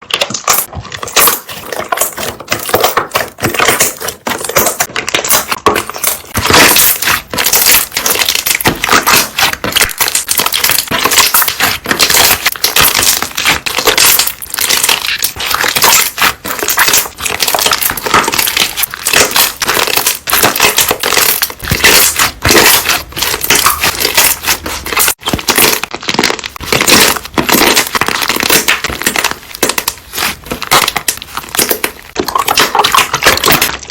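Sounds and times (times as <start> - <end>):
air bubbles popping: 30.4 - 33.9.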